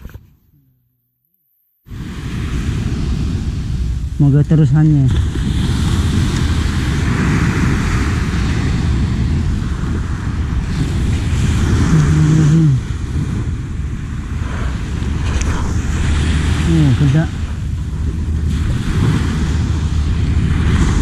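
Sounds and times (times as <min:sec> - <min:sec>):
person humming: 0:00.0 - 0:01.2
small surf waves washing: 0:01.9 - 0:21.0
wind buffeting microphone: 0:01.9 - 0:21.0.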